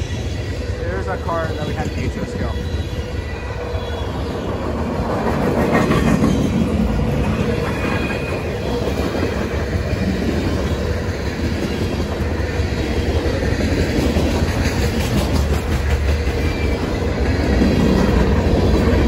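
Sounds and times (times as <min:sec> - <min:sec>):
freight train rumbling by: 0:00.0 - 0:19.0.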